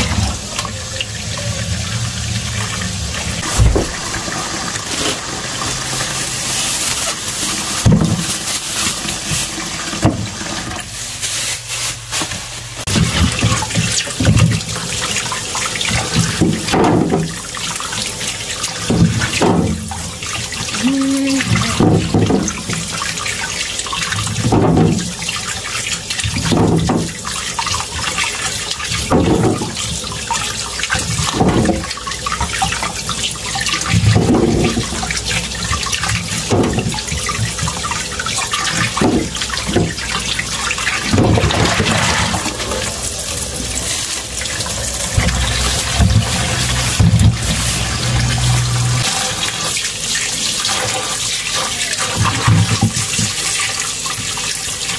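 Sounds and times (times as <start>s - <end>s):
water splashing: 2.6s - 10.0s, 12.8s - 54.2s
tap running into sink: 3.4s - 5.2s, 30.8s - 49.7s.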